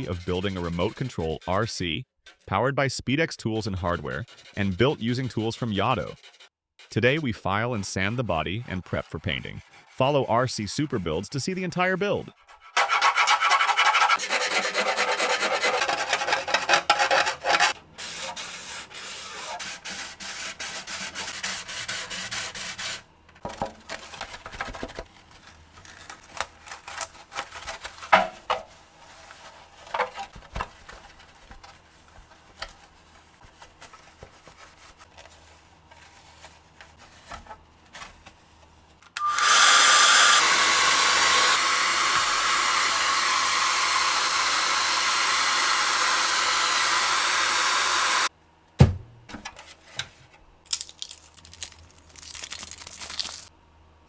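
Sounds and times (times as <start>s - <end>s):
sanding strokes: 0.0s - 2.5s, 3.4s - 23.0s, 26.8s - 38.7s, 39.3s - 48.3s
file rasping: 0.0s - 2.6s, 3.4s - 23.1s, 39.2s - 48.3s
loud steady blower: 39.2s - 48.3s.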